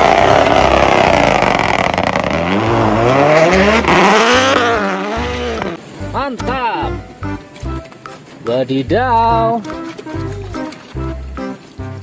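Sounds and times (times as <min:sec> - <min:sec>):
race car engine revving: 0:00.0 - 0:05.8.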